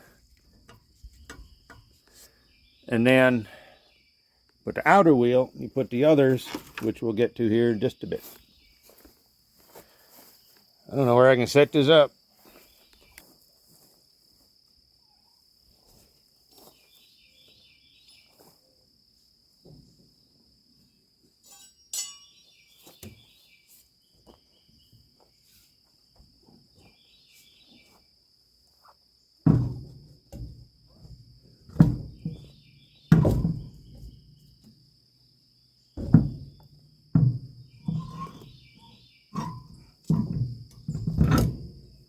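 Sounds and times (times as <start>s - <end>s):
crickets chirping: 0.0s - 42.0s
heavy metal clunks: 29.5s - 34.8s, 36.0s - 42.0s.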